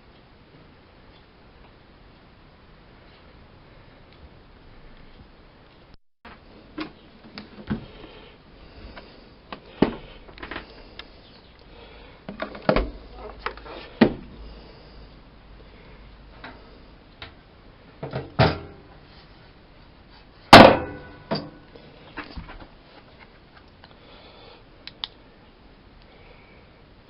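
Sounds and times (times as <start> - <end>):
washing machine door slamming: 20.5 - 21.5.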